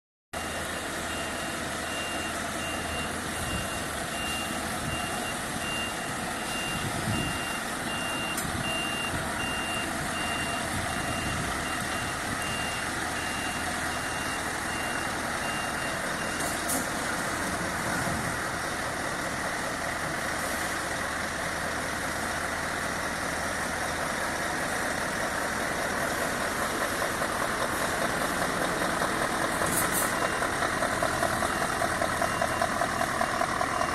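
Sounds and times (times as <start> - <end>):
reversing alarm beeping: 0.4 - 17.4, 25.1 - 33.9
truck engine running at low speed: 0.4 - 33.9.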